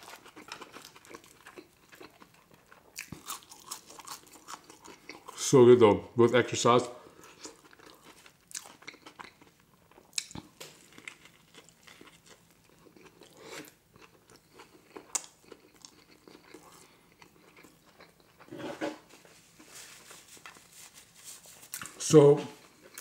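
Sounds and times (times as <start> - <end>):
biting and chewing burger: 0.0 - 5.4, 7.2 - 18.5.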